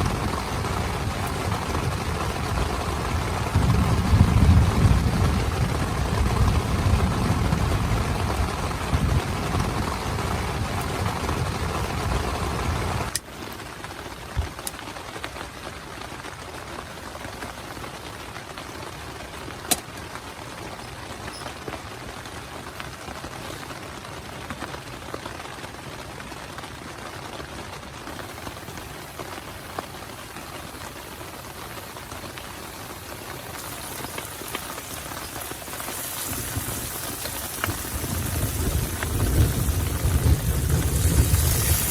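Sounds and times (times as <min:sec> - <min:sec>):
heavy rain on a tent: 0:00.0 - 0:41.9
sharp drips: 0:28.2 - 0:41.9.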